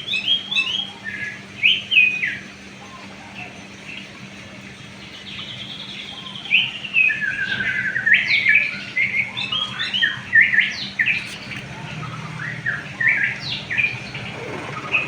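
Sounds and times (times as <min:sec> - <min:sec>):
songbird chirps and trills: 0:00.0 - 0:15.0.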